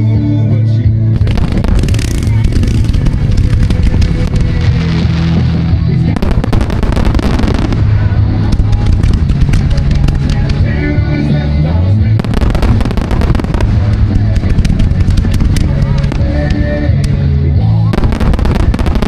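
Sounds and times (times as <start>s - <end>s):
music with bass notes: 0.0s - 19.0s
fireworks bangs and crackles: 1.1s - 19.0s.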